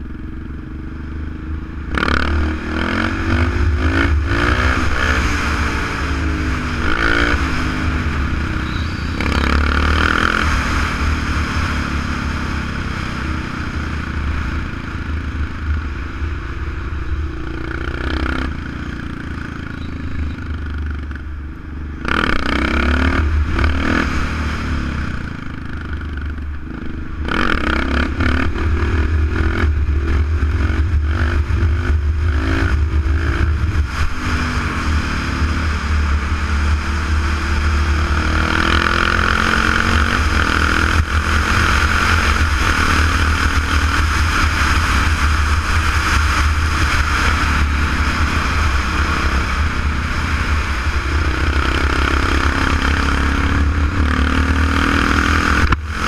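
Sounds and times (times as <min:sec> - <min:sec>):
motorcycle engine accelerating: 0:00.0 - 0:56.0
wind rushing over microphone: 0:01.5 - 0:56.0.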